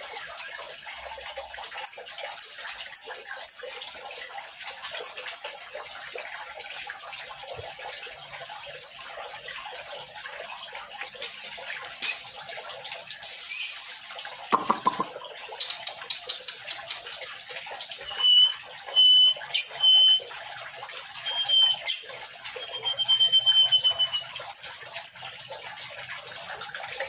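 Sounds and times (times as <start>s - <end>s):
water-like hiss: 13.2s - 14.1s
bird whistling: 13.3s - 14.0s, 18.0s - 20.3s, 21.2s - 24.7s.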